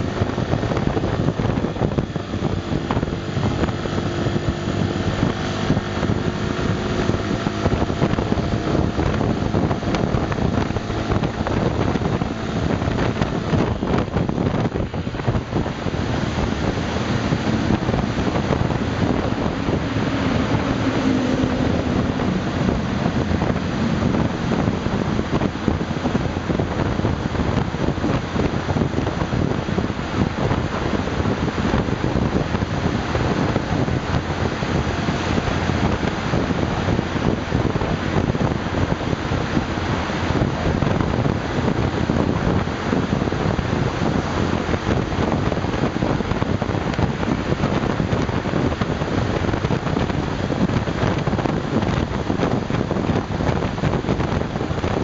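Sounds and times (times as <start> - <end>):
scooter engine running: 0.0 - 42.5
wind buffeting microphone: 0.0 - 55.0.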